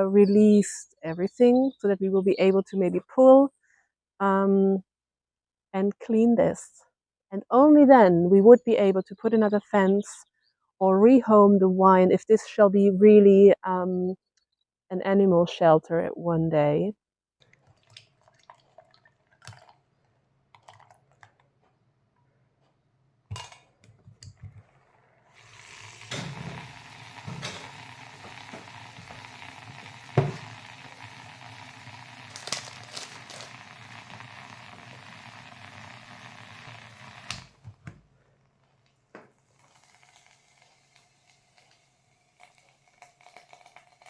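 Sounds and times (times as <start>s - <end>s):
steady hiss: 25.3s - 37.6s.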